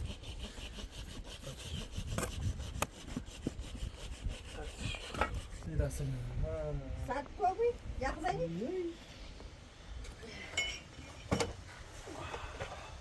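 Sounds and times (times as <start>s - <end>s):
rasping scraping strokes: 0.0s - 6.0s.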